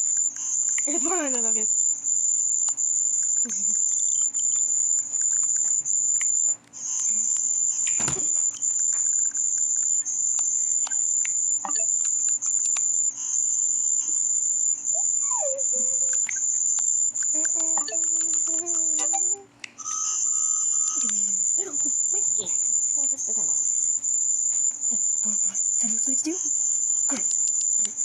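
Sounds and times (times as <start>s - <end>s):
very high-pitched trill: 0.0s - 28.0s
scattered clicks: 2.6s - 13.4s, 23.8s - 28.0s.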